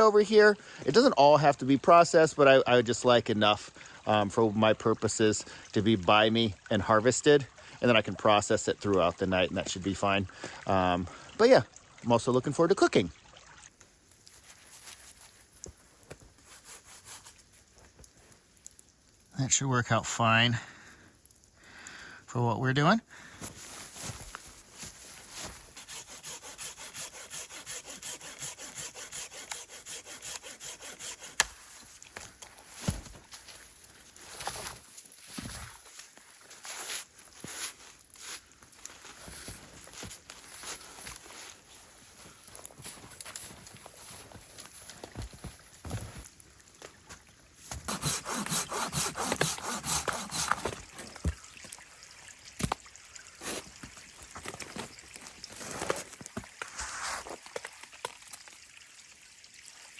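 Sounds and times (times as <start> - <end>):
hand saw cutting wood: 16.4 - 17.4, 25.7 - 31.8, 47.7 - 51.1.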